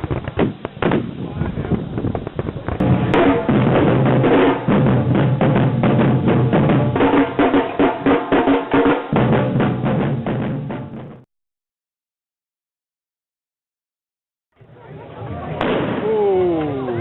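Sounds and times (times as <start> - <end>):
samba drums playing fast beat: 2.0 - 11.2.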